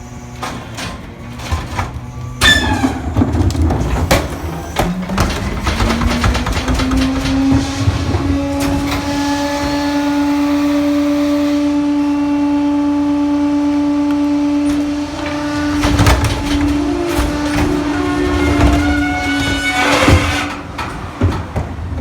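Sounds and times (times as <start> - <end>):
garbage truck hydraulic whine: 0.0 - 22.0
clattering and knocks: 0.4 - 10.5, 14.6 - 22.0.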